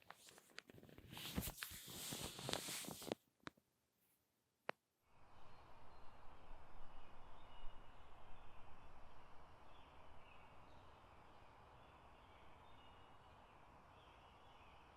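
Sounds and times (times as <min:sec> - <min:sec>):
low steady hiss: 0:00.0 - 0:14.9
faint bird chirps: 0:05.1 - 0:14.9.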